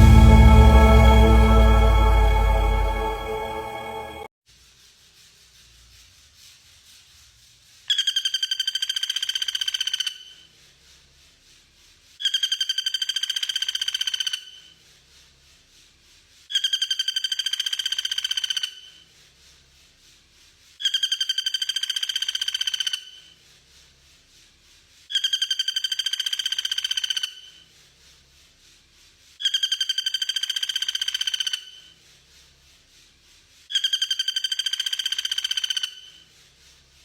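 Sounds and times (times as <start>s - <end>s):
bird buzzy trilled call: 16.5s - 18.9s, 29.4s - 31.9s, 33.7s - 36.2s.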